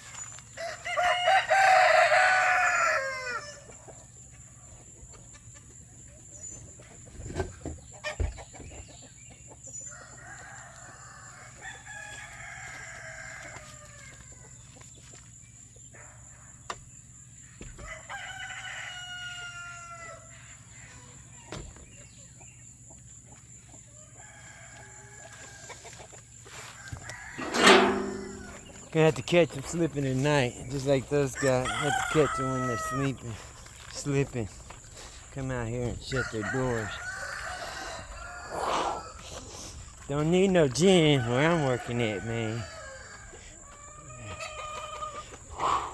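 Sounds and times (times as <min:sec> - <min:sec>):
roosters crowing: 0:00.2 - 0:04.4, 0:09.8 - 0:14.6, 0:17.8 - 0:21.2, 0:24.0 - 0:28.8, 0:31.2 - 0:34.0, 0:36.0 - 0:45.9
chickens clucking: 0:03.6 - 0:09.8
sharp knocks: 0:27.4 - 0:28.7.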